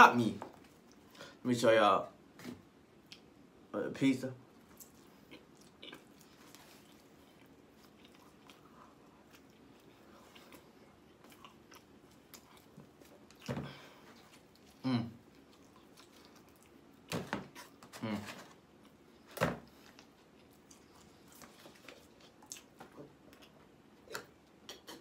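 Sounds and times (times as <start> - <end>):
person chewing food: 4.6 - 18.0, 18.6 - 25.0.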